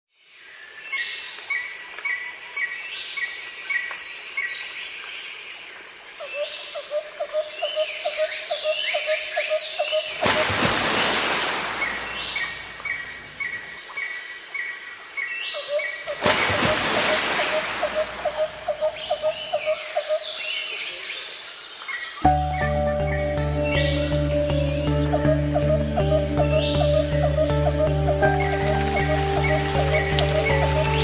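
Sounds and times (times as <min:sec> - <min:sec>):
birds chirping and calling: 0:15.5 - 0:20.8, 0:22.2 - 0:31.0.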